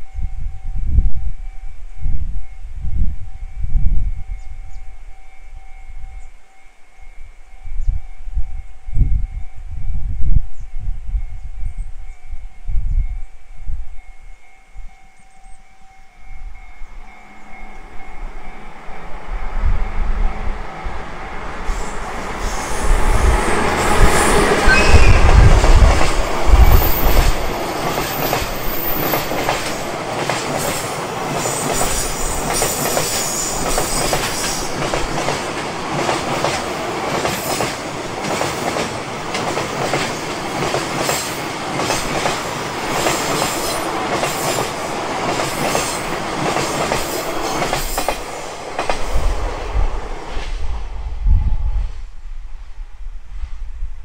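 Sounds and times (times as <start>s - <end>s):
diesel locomotive engine: 14.7s - 51.8s
wheels clacking over rail joints: 23.6s - 49.1s.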